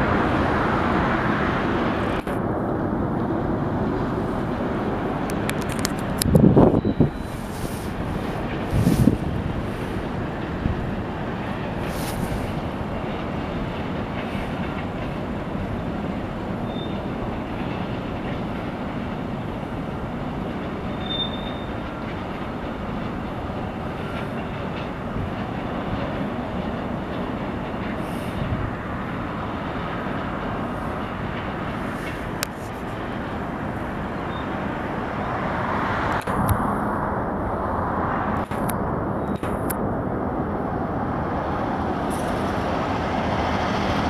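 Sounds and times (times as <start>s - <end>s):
train wheels rumbling on rail: 0.0s - 44.0s
high wheel squeals: 6.6s - 9.2s, 16.6s - 17.9s, 20.8s - 21.8s, 34.2s - 35.5s.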